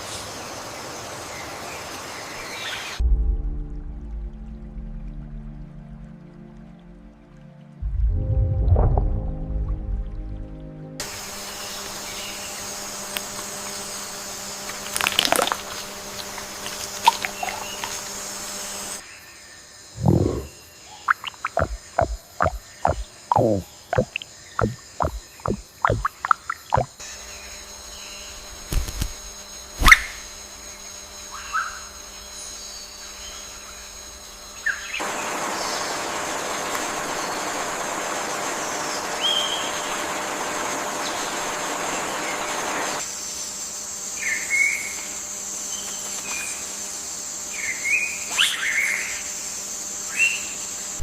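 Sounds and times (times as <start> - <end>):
high insect buzz: 11.0 - 51.0
bird chirps: 20.0 - 26.9.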